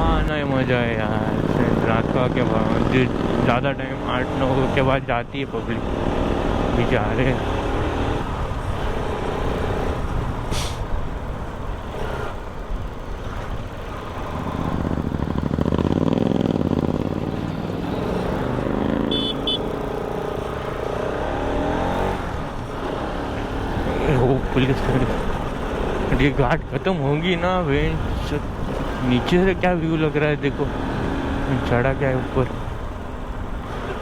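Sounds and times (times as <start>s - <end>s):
motorcycle engine: 0.0s - 34.0s
road noise: 0.0s - 34.0s
short high double beep: 19.1s - 19.6s.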